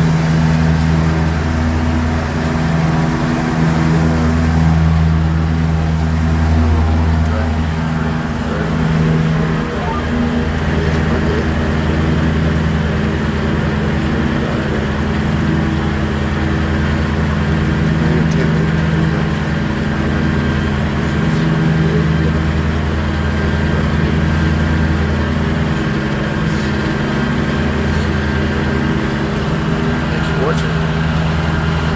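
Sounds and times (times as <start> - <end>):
tractor engine droning: 0.0 - 31.9.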